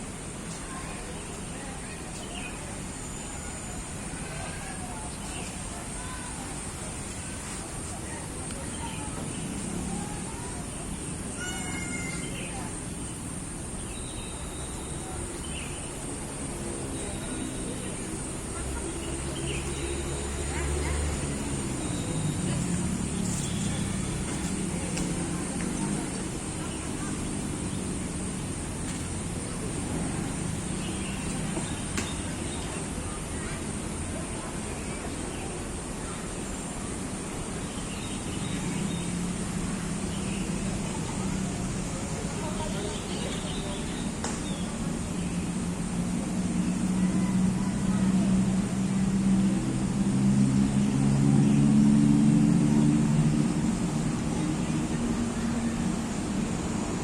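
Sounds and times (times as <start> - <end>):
distant traffic rumble: 0.0 - 57.0
vehicle engine humming: 12.2 - 32.3.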